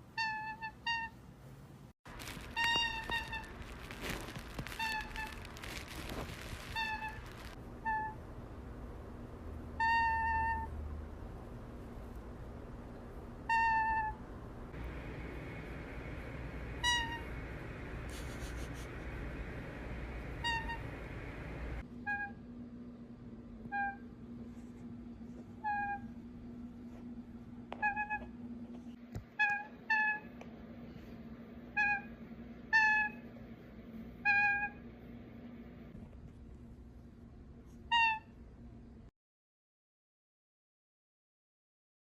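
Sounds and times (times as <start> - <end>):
low background hum: 0.0 - 39.1
animal high-pitched calls: 0.1 - 1.2, 2.2 - 8.2, 9.8 - 10.7, 13.5 - 14.2, 16.8 - 17.4, 20.3 - 21.1, 22.0 - 22.4, 23.7 - 24.1, 25.6 - 26.2, 27.8 - 28.3, 32.7 - 33.2, 34.2 - 34.8, 37.9 - 38.4.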